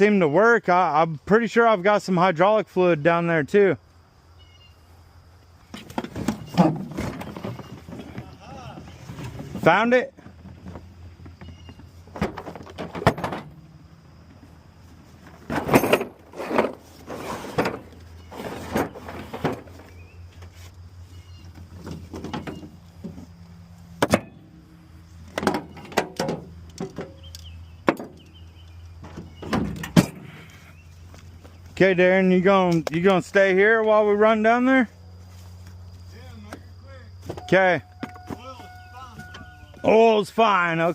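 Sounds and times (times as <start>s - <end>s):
irregular knocks and clunks: 5.7s - 14.4s, 21.5s - 23.3s, 25.2s - 28.4s, 29.0s - 30.3s.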